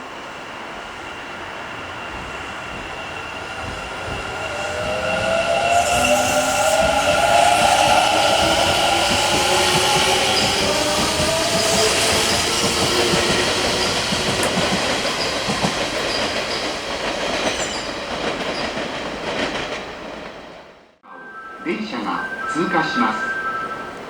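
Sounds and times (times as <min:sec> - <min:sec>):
wheels clacking over rail joints: 0:02.2 - 0:20.5.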